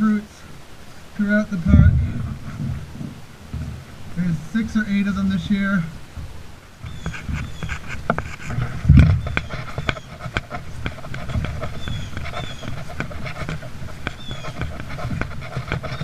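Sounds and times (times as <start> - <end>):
footsteps on forest trail: 6.1 - 16.0.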